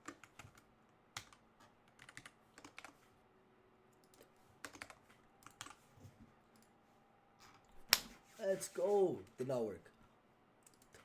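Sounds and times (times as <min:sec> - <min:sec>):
computer keyboard typing: 0:00.0 - 0:00.6, 0:01.2 - 0:03.0, 0:04.0 - 0:05.8.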